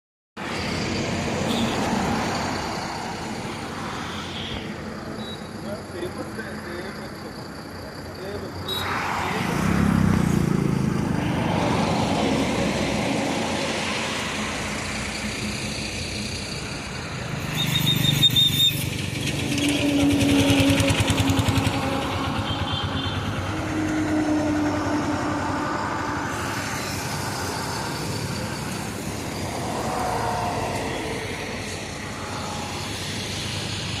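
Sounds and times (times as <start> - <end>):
traffic engines running: 0.4 - 34.0.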